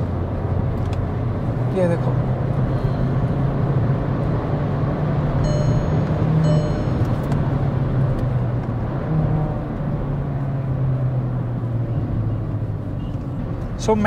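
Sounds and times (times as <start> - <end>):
car engine hum: 0.0 - 14.0
road noise: 0.0 - 14.0
short high-pitched tone: 5.4 - 7.2.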